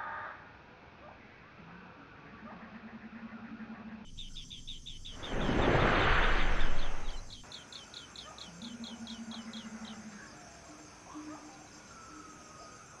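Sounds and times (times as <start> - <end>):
bird chirping rapidly: 4.1 - 10.0.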